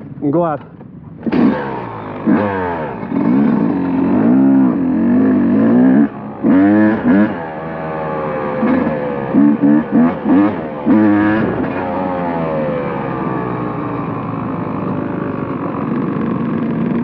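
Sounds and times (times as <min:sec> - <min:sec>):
dirt bike engine revving: 0:01.2 - 0:17.0.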